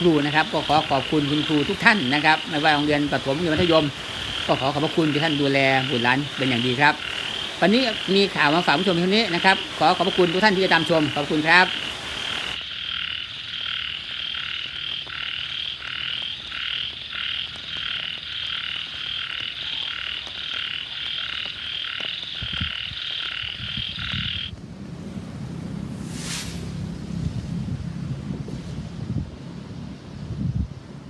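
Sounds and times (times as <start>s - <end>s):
frogs calling: 0.0s - 24.6s
low rumble: 23.7s - 31.0s.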